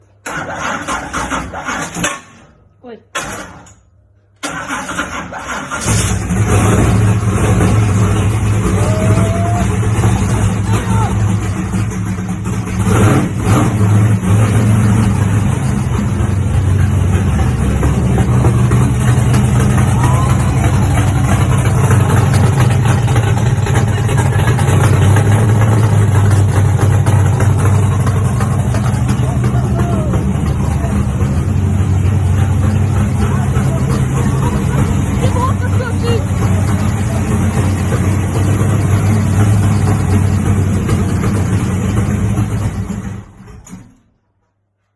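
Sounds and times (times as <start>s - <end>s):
engine idling: 3.3s - 44.9s.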